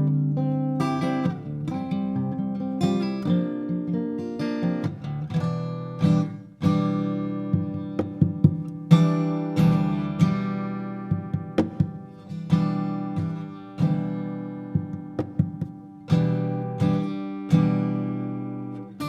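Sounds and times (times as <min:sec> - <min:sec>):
fingerstyle acoustic guitar: 0:00.0 - 0:19.0.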